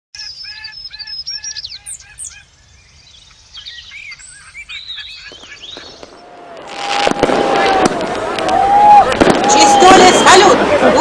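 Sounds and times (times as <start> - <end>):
birds chirping and whistling: 0.2 - 6.3.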